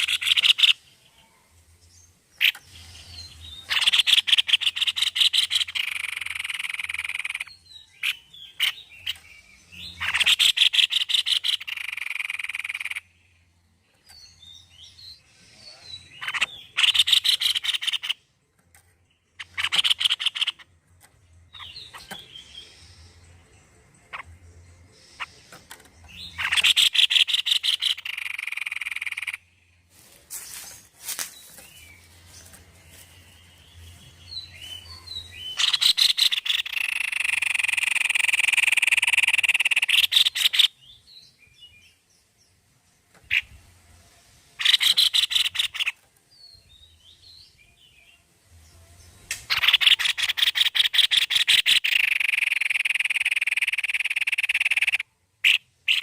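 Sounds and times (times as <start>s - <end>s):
faint bird chirps: 30.4s - 56.0s.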